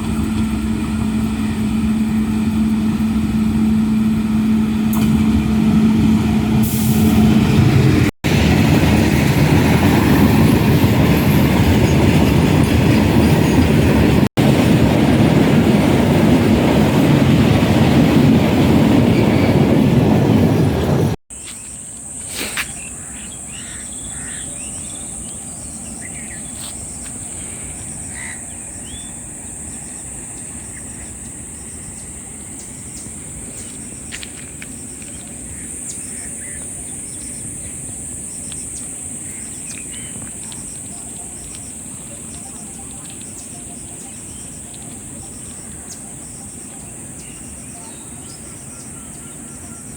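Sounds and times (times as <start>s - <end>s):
train rumbling on rails: 0.0s - 49.9s
high insect drone: 21.4s - 49.9s
bird calls: 22.4s - 49.9s.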